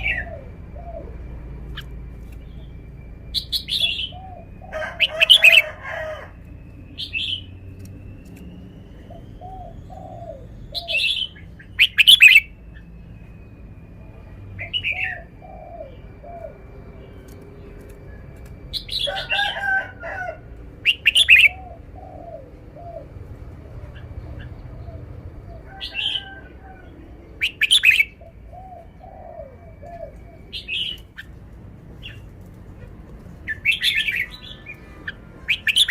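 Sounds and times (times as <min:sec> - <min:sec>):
bird singing sharp phrases: 0:00.0 - 0:04.6, 0:06.8 - 0:18.0, 0:29.6 - 0:31.4.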